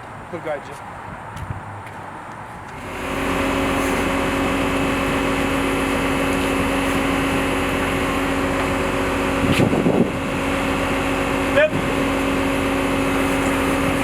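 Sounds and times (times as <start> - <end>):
engine humming: 2.5 - 14.0.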